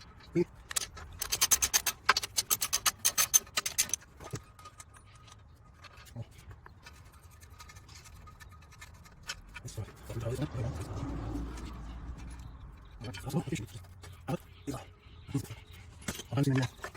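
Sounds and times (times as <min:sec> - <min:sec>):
ratchet wrench clicking: 0:00.7 - 0:04.0.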